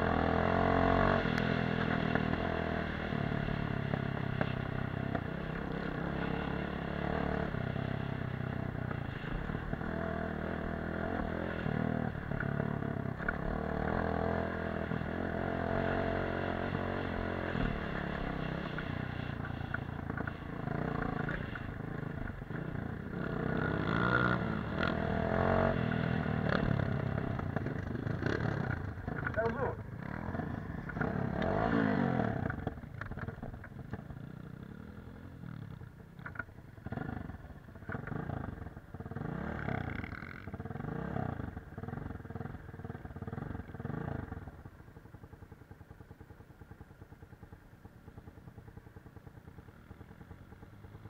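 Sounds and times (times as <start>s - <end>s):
dirt bike engine revving: 0.0s - 32.7s, 36.8s - 44.4s.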